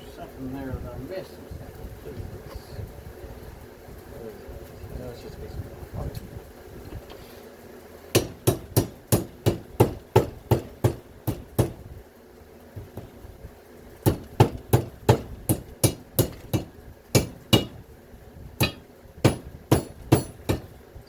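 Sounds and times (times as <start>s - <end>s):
hammer blows on metal motor: 8.1s - 11.9s, 12.7s - 13.3s, 14.0s - 17.9s, 18.6s - 20.8s.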